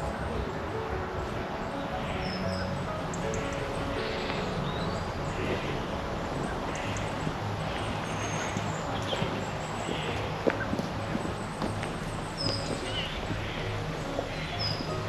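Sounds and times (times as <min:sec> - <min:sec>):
bird chirps: 0:01.6 - 0:15.0.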